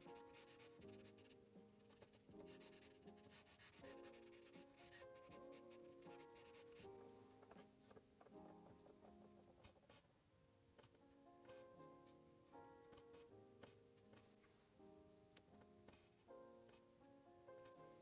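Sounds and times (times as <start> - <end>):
pen scratching on paper: 0.0 - 6.9
soft calm background music: 0.0 - 18.0.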